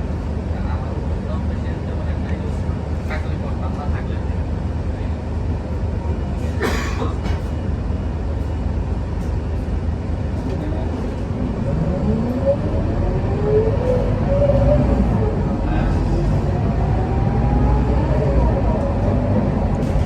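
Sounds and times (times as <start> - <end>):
diesel bus engine running: 0.0 - 20.0
whine rising in pitch: 11.5 - 20.0.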